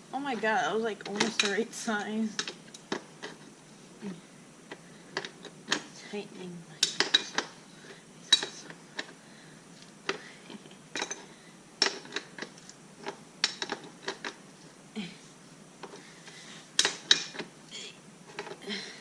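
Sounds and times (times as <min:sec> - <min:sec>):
metal tools clinking on metal: 0:06.8 - 0:07.5, 0:08.3 - 0:09.1, 0:10.9 - 0:14.3.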